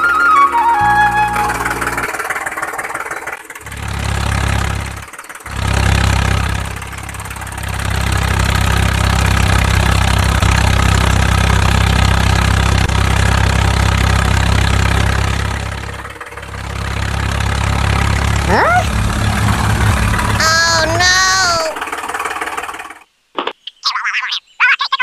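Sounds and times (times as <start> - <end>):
tractor engine running: 0.0 - 23.1.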